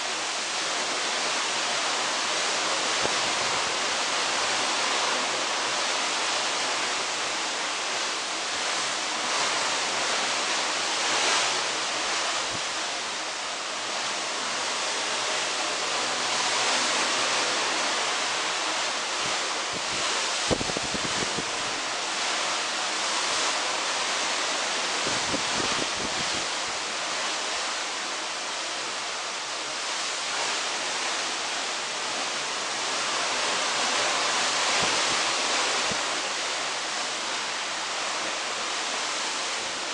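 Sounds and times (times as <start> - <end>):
sea water rushing past hull: 0.0 - 39.9
wind: 0.0 - 39.9
wind buffeting microphone: 19.7 - 21.8, 25.0 - 26.6.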